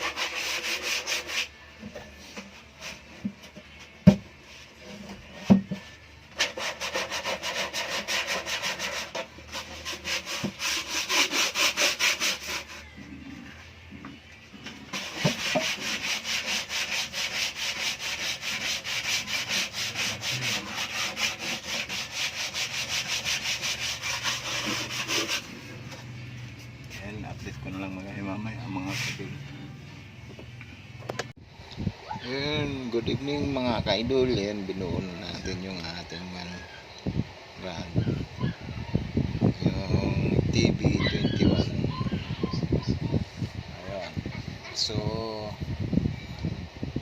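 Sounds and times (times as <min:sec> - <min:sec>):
hand tool scraping wood: 0:00.0 - 0:01.5, 0:06.4 - 0:12.9, 0:14.9 - 0:25.7, 0:28.7 - 0:29.3.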